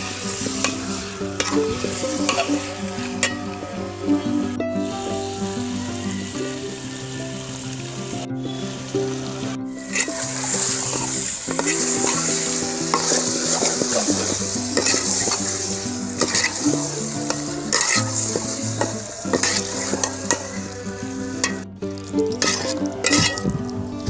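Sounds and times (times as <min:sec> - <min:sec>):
spatula scraping a pan: 0:00.0 - 0:03.5, 0:09.8 - 0:21.6, 0:22.3 - 0:23.5
background music: 0:00.0 - 0:24.0
chicken sizzling in a pan: 0:00.0 - 0:24.0.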